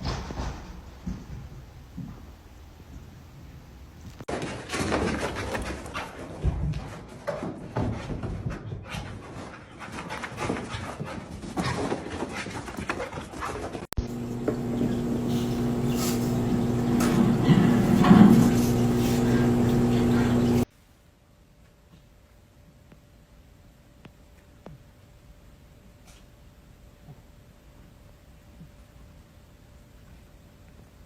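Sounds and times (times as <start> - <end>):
steady low hum: 14.0 - 20.7.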